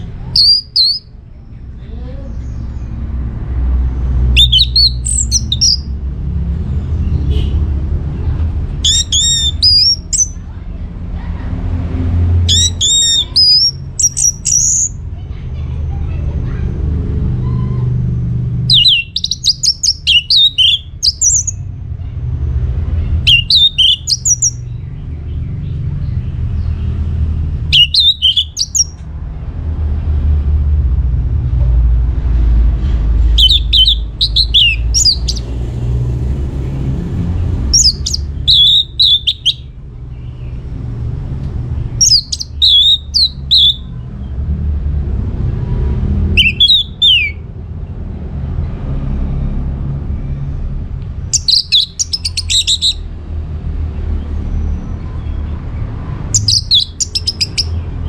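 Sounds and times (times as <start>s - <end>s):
thrush singing whistled phrases: 0.3s - 1.1s, 4.2s - 5.9s, 8.8s - 10.4s, 12.5s - 15.0s, 18.7s - 21.6s, 23.2s - 24.6s, 27.7s - 29.0s, 33.3s - 35.5s, 37.7s - 39.7s, 42.0s - 43.9s, 46.3s - 47.4s, 51.3s - 53.1s, 56.3s - 57.9s.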